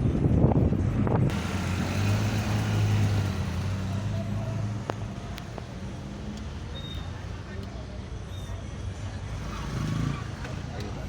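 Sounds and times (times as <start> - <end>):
road noise: 0.0 - 11.0
car engine humming: 1.3 - 8.1.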